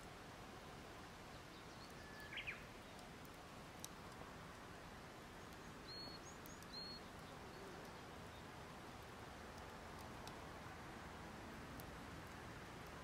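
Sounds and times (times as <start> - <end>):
birds chirping: 1.3 - 3.1, 5.4 - 8.5
faint tick: 1.8 - 4.7, 5.4 - 8.0, 9.0 - 10.4.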